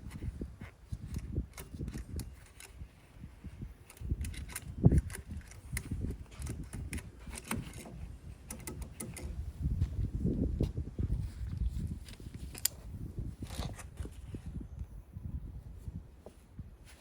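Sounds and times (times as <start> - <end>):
metallic clicks of hand tools: 3.9 - 9.3.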